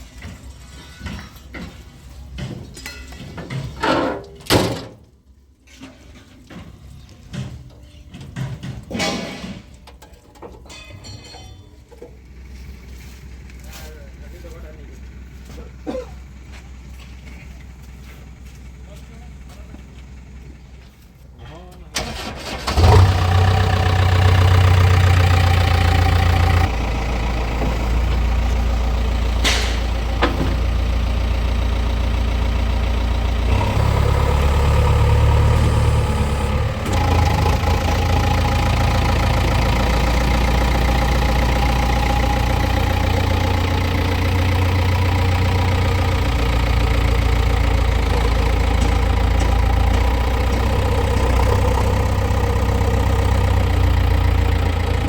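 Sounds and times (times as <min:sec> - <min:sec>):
diesel engine running: 0:11.9 - 0:55.0.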